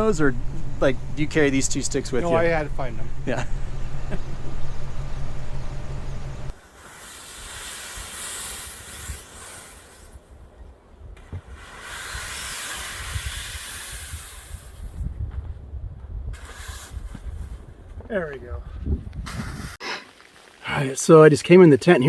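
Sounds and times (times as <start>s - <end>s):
wind buffeting microphone: 0.0s - 6.6s, 12.9s - 19.8s
wind gusting hiss: 0.0s - 10.6s, 11.2s - 15.2s, 16.3s - 17.9s.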